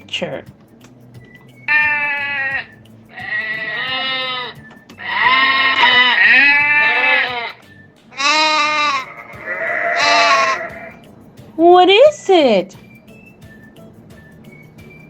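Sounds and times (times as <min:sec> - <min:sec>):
sheep bleating: 0:01.7 - 0:11.0.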